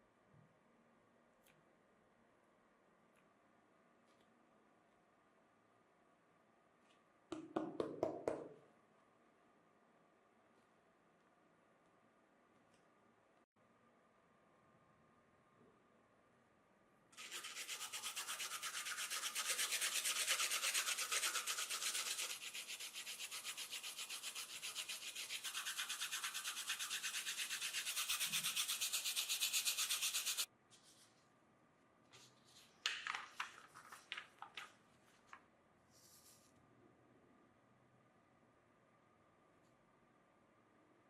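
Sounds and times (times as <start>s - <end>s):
fast scratching on a surface: 17.2s - 30.5s.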